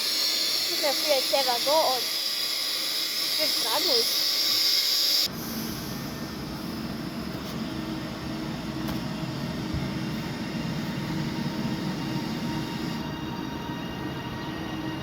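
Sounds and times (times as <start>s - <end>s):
train rumbling past: 5.3s - 15.0s.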